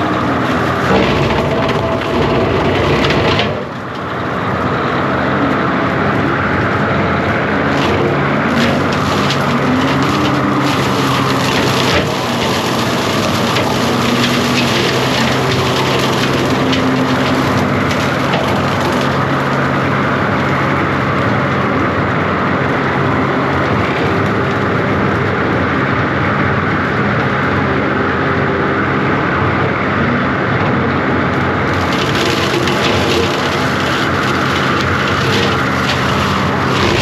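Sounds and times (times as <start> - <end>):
wood cracking and snapping: 0.0 - 21.2, 31.7 - 37.0
diesel engine under load: 0.0 - 37.0.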